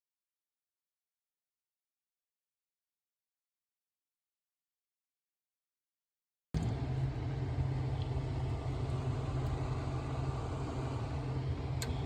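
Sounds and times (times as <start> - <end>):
car engine idling: 6.6 - 12.0.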